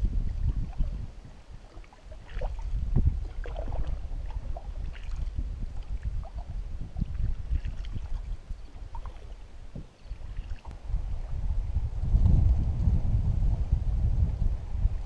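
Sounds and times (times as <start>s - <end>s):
steady low rumble: 0.0s - 15.0s
water dripping and splashing: 0.4s - 10.8s.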